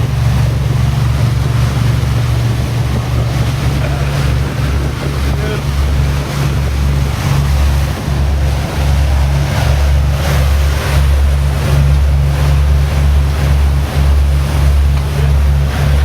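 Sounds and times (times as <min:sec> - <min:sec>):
boat engine droning: 0:00.0 - 0:16.0
water rushing past: 0:00.0 - 0:16.0
wind across microphone: 0:00.0 - 0:16.0.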